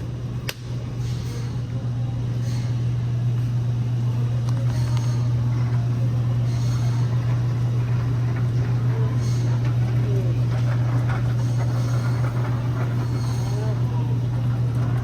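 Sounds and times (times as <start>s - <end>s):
low hum: 0.0s - 15.0s
sharp click: 0.4s - 0.7s.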